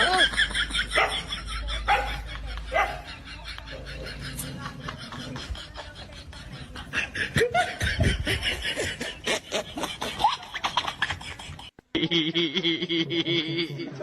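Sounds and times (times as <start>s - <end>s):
laughter: 0.0s - 14.0s.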